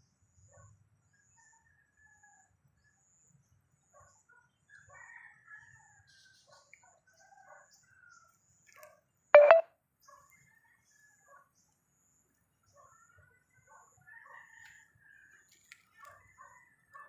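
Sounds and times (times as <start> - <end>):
bird chirping: 9.4 - 9.6.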